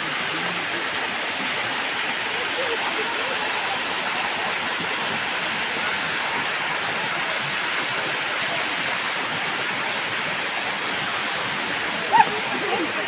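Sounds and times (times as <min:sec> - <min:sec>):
stream rushing over rapids: 0:00.0 - 0:13.0.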